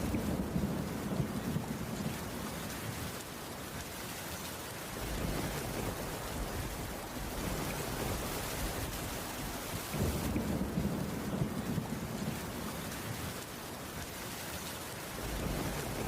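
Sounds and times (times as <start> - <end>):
low rolling thunder: 0.0 - 3.2, 5.0 - 13.5, 15.1 - 16.0
heavy rain: 0.0 - 16.0.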